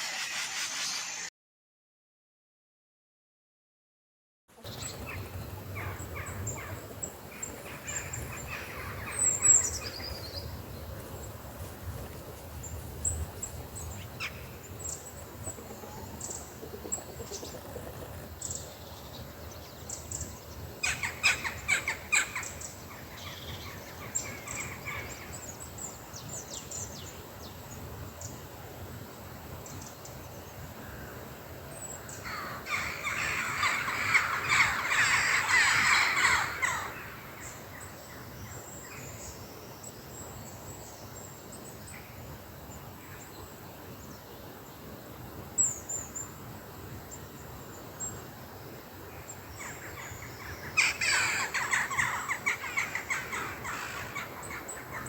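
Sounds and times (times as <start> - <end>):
birds chirping: 4.6 - 27.8, 31.8 - 39.4, 49.3 - 55.0
harsh cawing calls: 32.3 - 37.3, 50.8 - 54.3.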